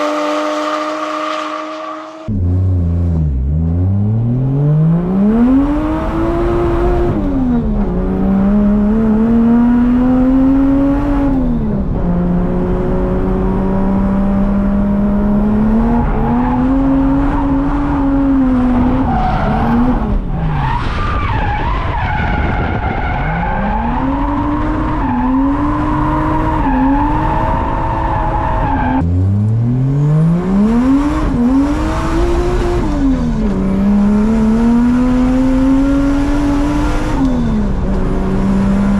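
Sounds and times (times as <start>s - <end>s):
car engine revving hard: 23.5s - 38.9s.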